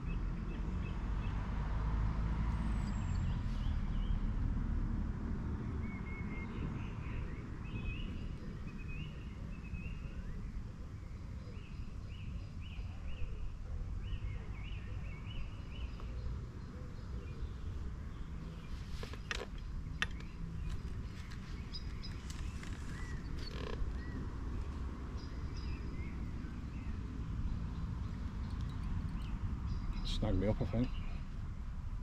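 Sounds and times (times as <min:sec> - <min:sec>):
small bird chirping: 0:17.0 - 0:31.4.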